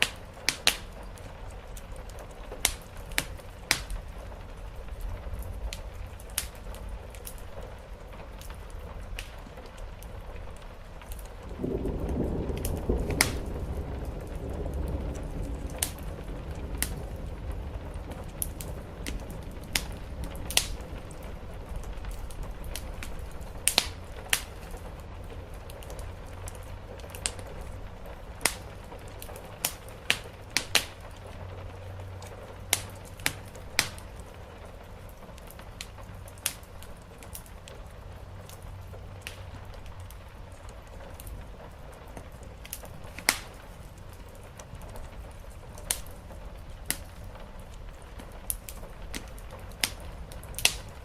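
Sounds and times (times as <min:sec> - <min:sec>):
wood fire crackling: 0:00.0 - 0:51.0
low rumble: 0:10.2 - 0:29.5.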